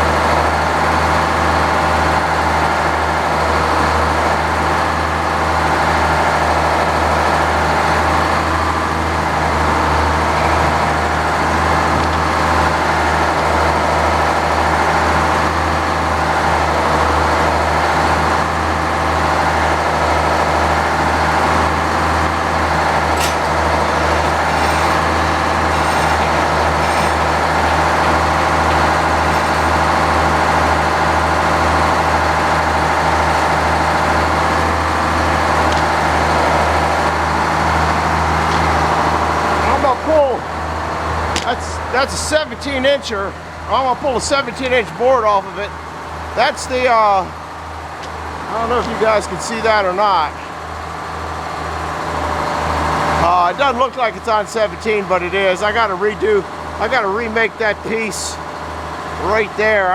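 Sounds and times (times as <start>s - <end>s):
sawmill running: 0.0s - 59.9s.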